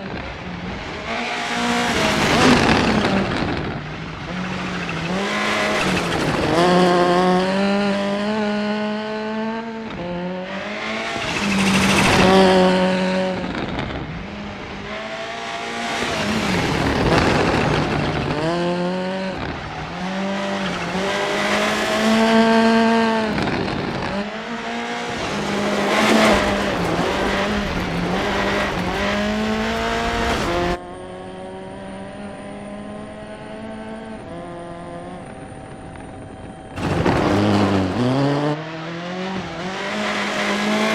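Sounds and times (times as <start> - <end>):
rally car engine revving: 0.0 - 40.9.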